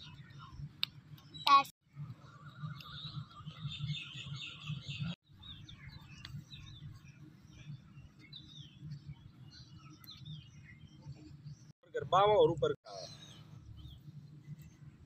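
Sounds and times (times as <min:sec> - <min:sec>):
birds chirping faintly: 0:00.0 - 0:15.0.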